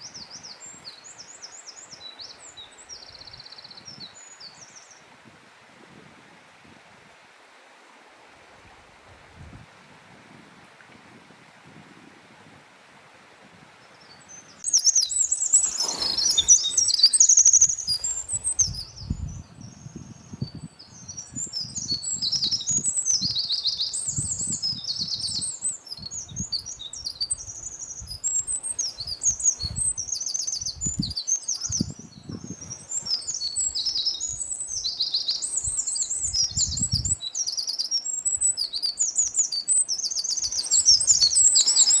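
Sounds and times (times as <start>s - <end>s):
wren singing trills: 14.3s - 42.0s.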